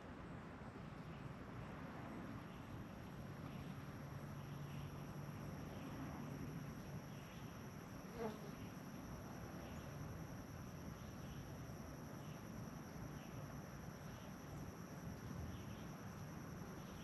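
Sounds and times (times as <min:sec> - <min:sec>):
low steady buzz: 0:00.0 - 0:17.0
insects trilling: 0:02.5 - 0:17.0
short insect chirp: 0:03.5 - 0:17.0.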